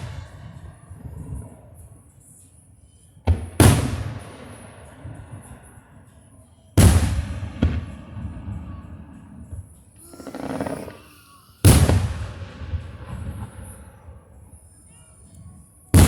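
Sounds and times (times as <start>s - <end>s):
firework booms with echo: 3.3s - 5.6s, 6.8s - 11.0s, 11.6s - 14.4s
firework cracks: 10.0s - 13.8s.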